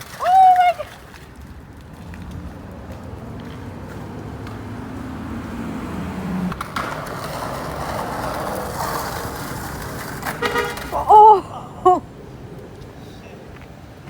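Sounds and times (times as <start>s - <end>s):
skateboard wheels rolling on pavement: 0.0s - 14.0s
skateboard sharp clicks: 6.5s - 11.0s.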